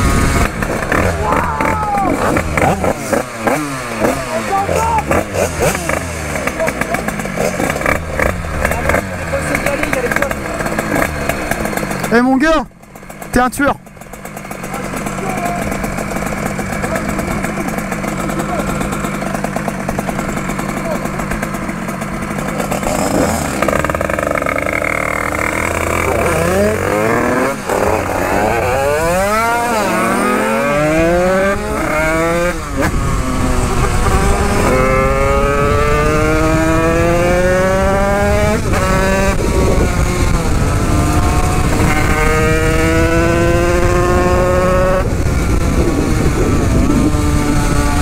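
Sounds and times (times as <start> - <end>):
dirt bike engine accelerating: 0.0 - 48.0
wind rumbling on microphone: 30.8 - 48.0.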